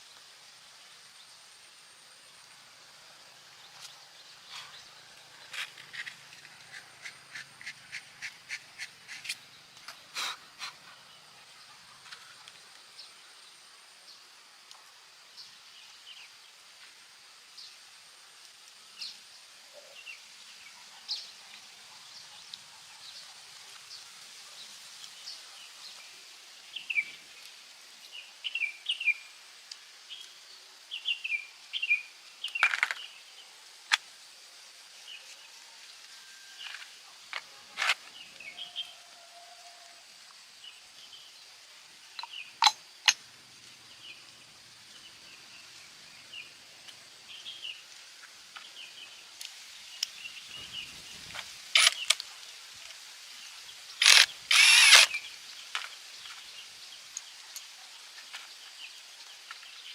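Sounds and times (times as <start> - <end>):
birds chirping: 42.1 - 43.2
sharp clicks: 54.0 - 55.2.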